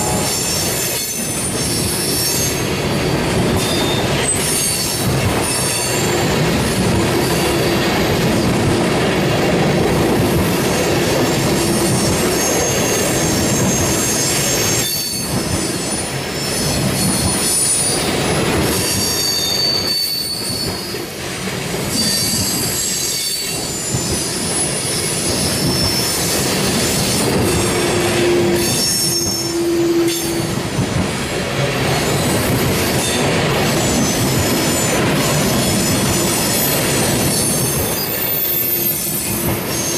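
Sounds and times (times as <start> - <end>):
shrill wheel squeals: 0.0 - 6.3, 11.3 - 18.0, 18.8 - 21.1, 21.9 - 30.6, 33.8 - 39.9
train wheels rumbling on rails: 0.0 - 39.9.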